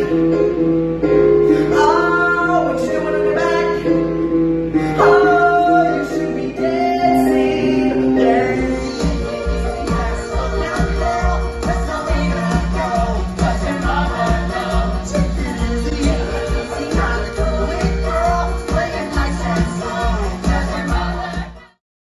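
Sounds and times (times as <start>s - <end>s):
person singing gliding notes: 1.3s - 11.6s.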